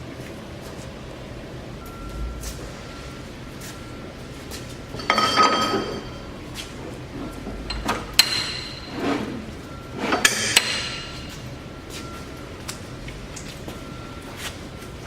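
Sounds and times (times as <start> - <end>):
metal parts clanking: 4.9 - 6.4, 7.2 - 9.4.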